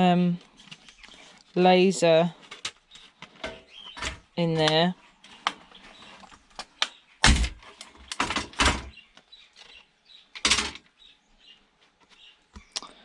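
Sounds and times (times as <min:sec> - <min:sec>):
plastic parts knocking and clattering: 0:02.4 - 0:05.6, 0:06.2 - 0:10.9.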